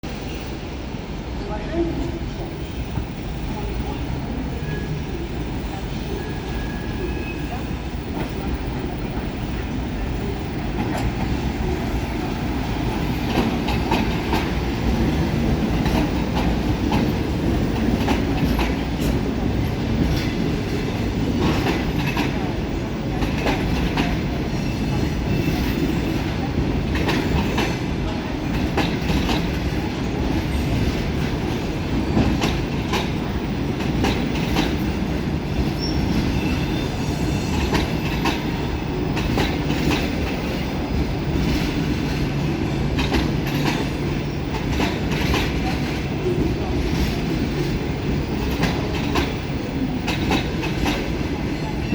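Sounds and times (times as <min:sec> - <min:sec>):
train cars rumbling past: 0:00.0 - 0:51.9
faint high wheel squeals: 0:03.5 - 0:08.0, 0:35.6 - 0:38.9
wheels clacking over rail joints: 0:08.0 - 0:51.9.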